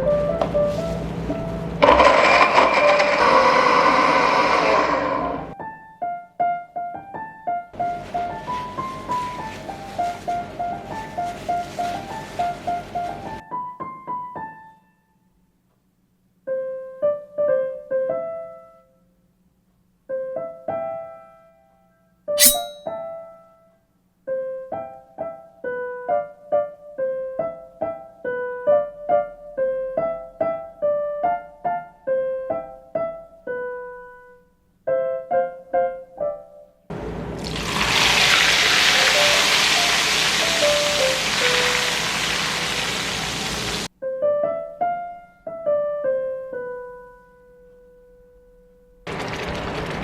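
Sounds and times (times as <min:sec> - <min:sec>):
piano music: 0:00.0 - 0:01.9, 0:05.5 - 0:14.8, 0:39.0 - 0:42.4, 0:43.9 - 0:49.0.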